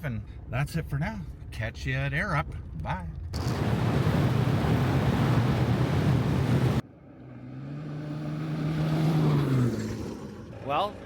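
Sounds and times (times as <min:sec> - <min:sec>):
road and wind noise: 0:00.0 - 0:11.0
vehicle engine hum: 0:03.1 - 0:11.0.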